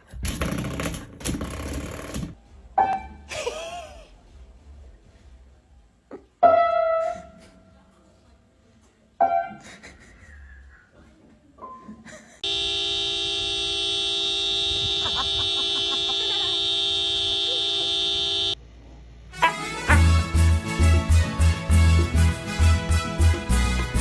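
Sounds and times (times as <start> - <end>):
loud horn-like tone: 12.4 - 18.6, 19.4 - 20.4.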